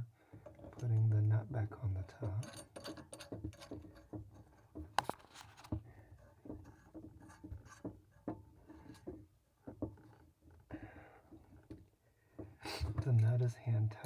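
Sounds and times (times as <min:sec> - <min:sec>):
metal threads scraping: 0:02.3 - 0:05.6.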